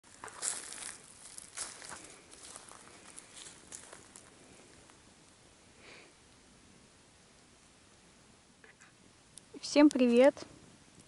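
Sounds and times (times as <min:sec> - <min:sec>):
footsteps scuffing on ground: 0:00.0 - 0:04.3.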